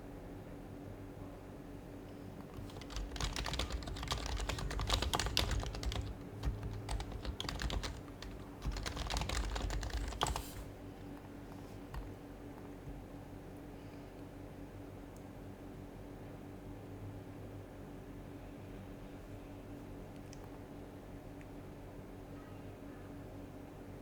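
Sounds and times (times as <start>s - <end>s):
keyboard typing: 2.4s - 10.7s.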